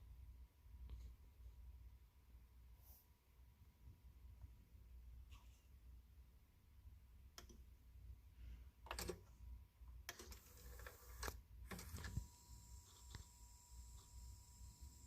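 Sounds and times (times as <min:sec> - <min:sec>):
mechanical clicks and rattles: 0:08.9 - 0:09.2
faint steady high tone: 0:12.1 - 0:15.0.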